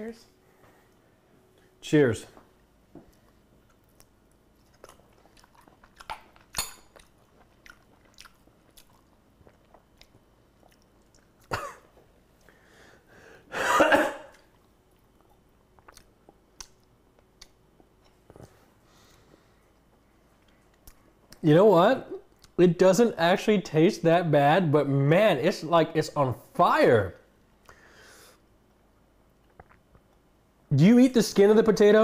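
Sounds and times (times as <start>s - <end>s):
people chewing: 3.0s - 12.6s, 14.3s - 21.4s, 29.4s - 30.2s.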